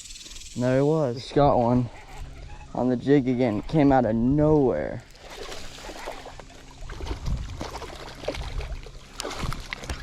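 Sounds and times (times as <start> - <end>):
water splashing and dribbling: 4.4 - 10.0.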